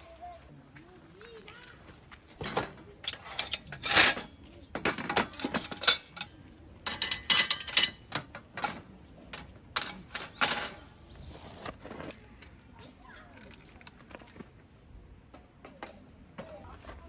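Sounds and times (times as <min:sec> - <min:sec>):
clicks of hard objects handled: 0:11.6 - 0:14.6.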